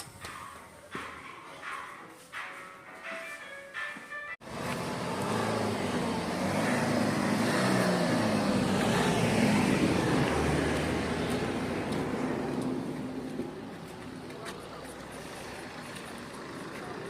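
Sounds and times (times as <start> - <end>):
road noise: 3.7 - 17.0
vehicle engine running: 4.4 - 17.0.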